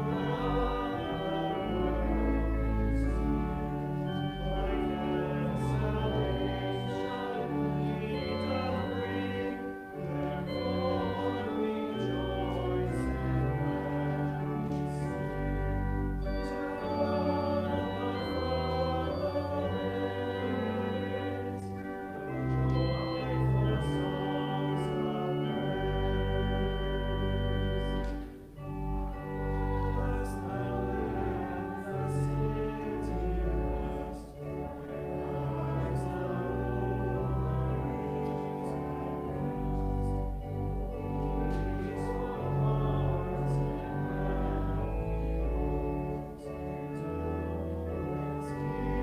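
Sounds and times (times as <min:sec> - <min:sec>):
church organ playing a hymn: 0:00.0 - 0:49.0.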